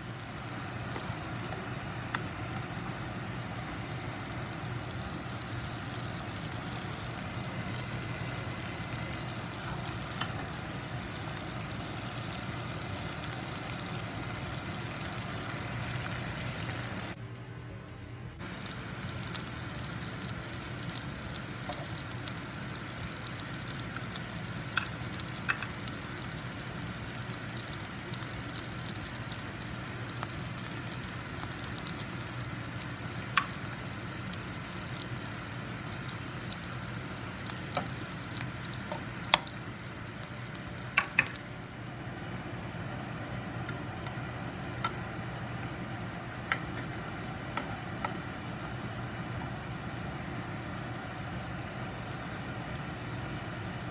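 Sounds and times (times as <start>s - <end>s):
food sizzling in a pan: 0.0s - 17.2s, 18.4s - 53.9s
utensil clicking against pan: 24.7s - 25.8s, 38.9s - 39.5s, 40.9s - 41.4s.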